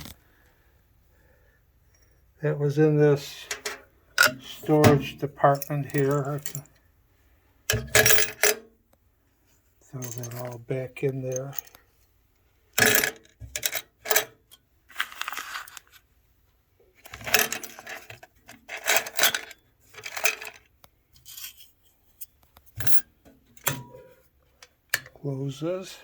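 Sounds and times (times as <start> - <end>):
small metal parts clattering: 3.2 - 6.8, 7.7 - 8.6, 9.9 - 11.8, 12.8 - 14.3, 14.9 - 16.0, 17.0 - 25.2.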